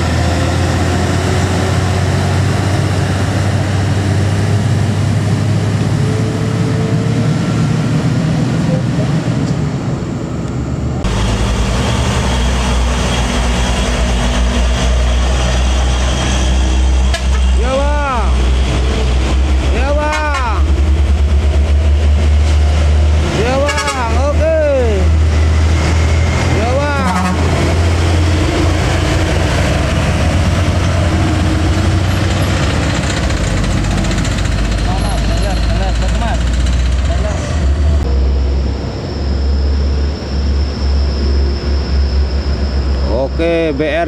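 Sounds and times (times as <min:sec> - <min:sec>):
deep heavy rumble: 0:00.0 - 0:44.0
truck diesel engine running: 0:10.2 - 0:44.0.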